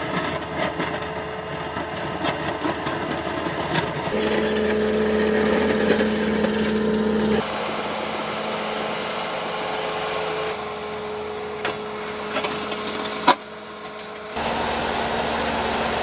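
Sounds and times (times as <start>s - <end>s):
heavy machinery engine running: 0.0s - 16.0s
steady machine whine: 4.0s - 16.0s.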